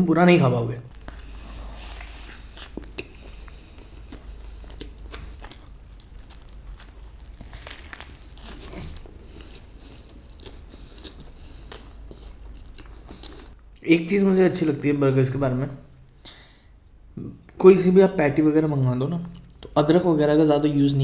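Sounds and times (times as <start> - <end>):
person chewing a burger: 0.9 - 13.8.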